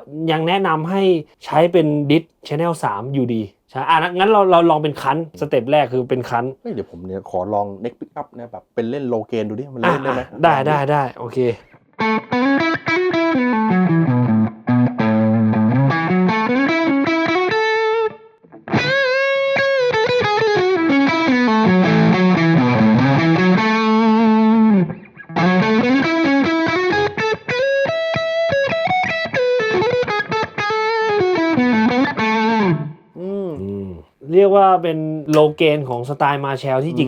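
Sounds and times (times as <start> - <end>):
distorted electric guitar lead: 12.0 - 33.1.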